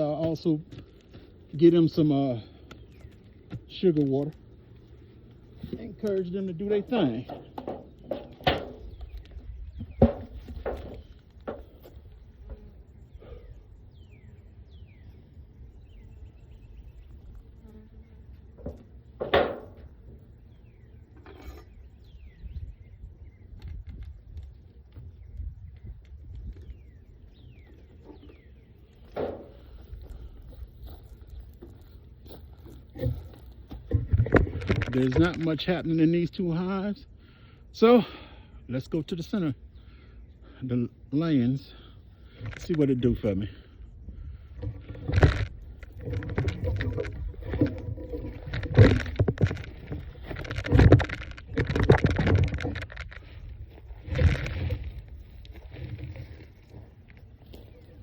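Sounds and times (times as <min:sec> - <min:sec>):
thumps and knocks of beehive equipment: 0:05.6 - 0:12.7, 0:18.5 - 0:20.3, 0:29.0 - 0:35.8, 0:44.1 - 0:56.4.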